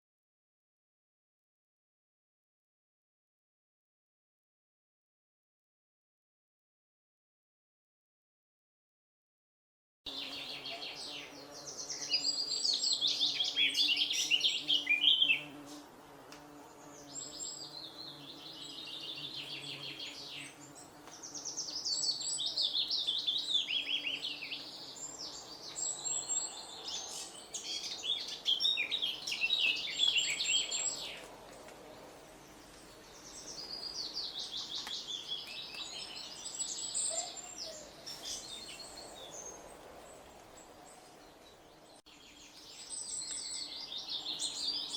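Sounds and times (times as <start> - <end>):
songbird singing trills: 10.1 - 15.8, 16.7 - 31.3, 32.5 - 39.8, 41.0 - 44.9.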